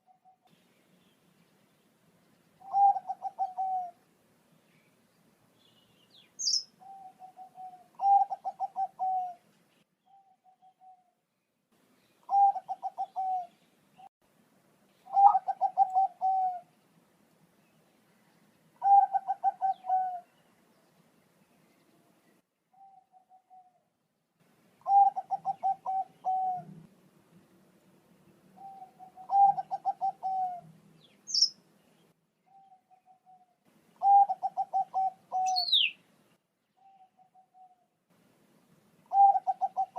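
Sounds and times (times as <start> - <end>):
zebra dove cooing: 2.6 - 4.0, 6.4 - 9.4, 12.3 - 13.6, 15.0 - 16.7, 18.8 - 20.3, 24.8 - 26.9, 28.6 - 30.7, 32.5 - 36.0, 39.1 - 39.9.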